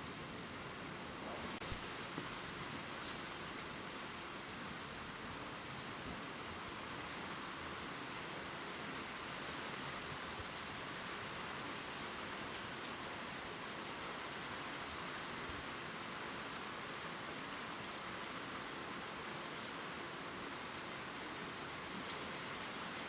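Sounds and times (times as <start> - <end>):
rain falling on leaves: 0.0 - 23.0
faint drip ticks: 18.3 - 18.6.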